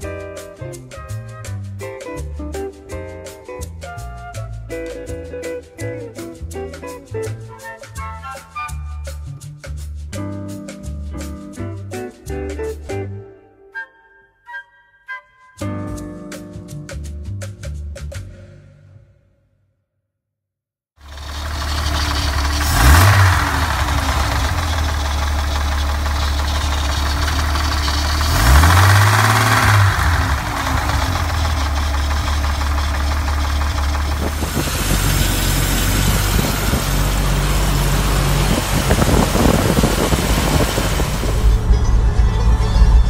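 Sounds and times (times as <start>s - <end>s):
engine idling with throttle blips: 21.0s - 43.0s.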